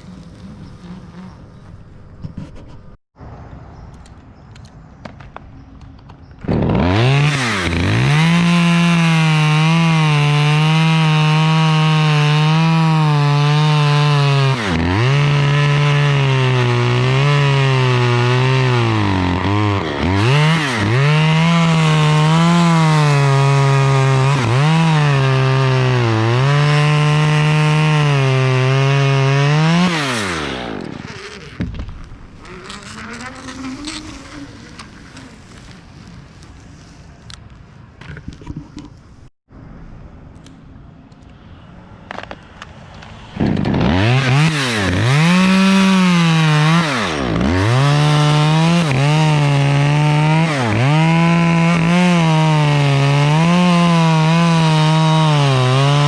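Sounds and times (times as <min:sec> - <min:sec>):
chainsaw cutting wood: 0:06.4 - 0:36.6, 0:42.1 - 0:56.0.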